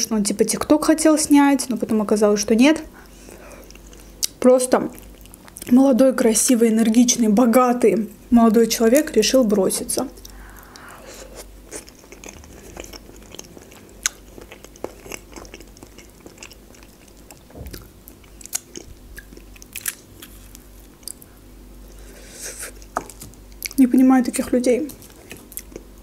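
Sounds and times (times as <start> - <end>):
wet chewing mouth sounds: 10.0 - 21.3.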